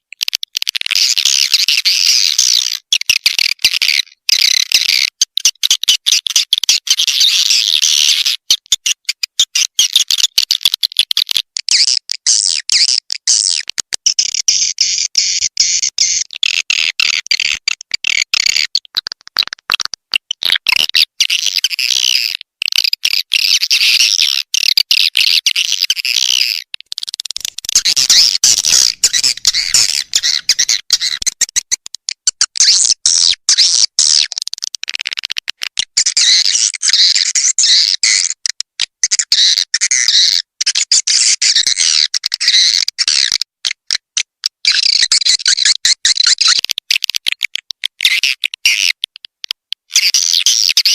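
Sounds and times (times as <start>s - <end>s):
swiftlet chirps and clicks: 27.0s - 32.6s.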